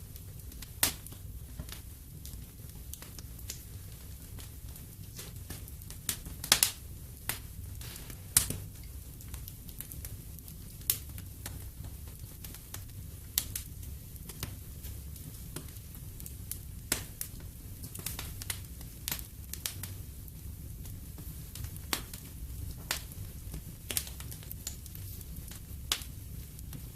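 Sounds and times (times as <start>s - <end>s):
wood fire crackling and popping: 0.0s - 26.9s.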